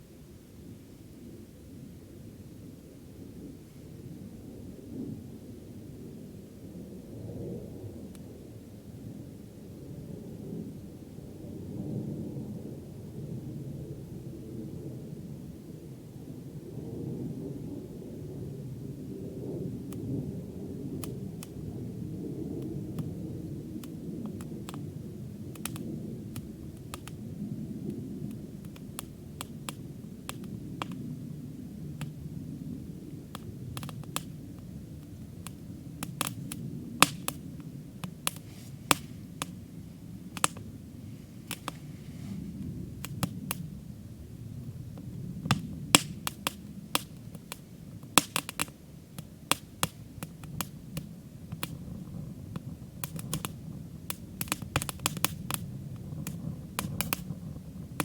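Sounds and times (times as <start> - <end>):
campfire crackling and popping: 19.3 - 58.0.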